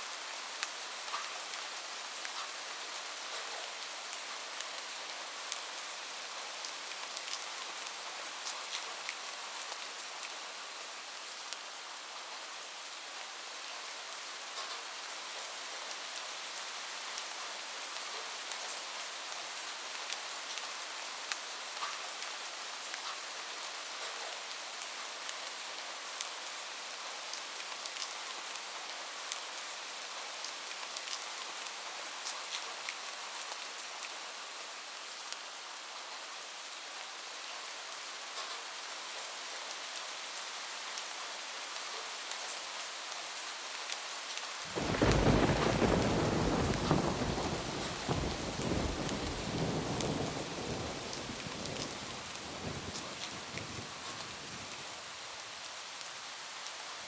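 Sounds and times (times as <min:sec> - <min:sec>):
rain pattering on a roof: 0:00.0 - 0:57.0
thunderclap and deep rumble: 0:44.7 - 0:54.3
sharp raindrop ticks: 0:44.7 - 0:54.8.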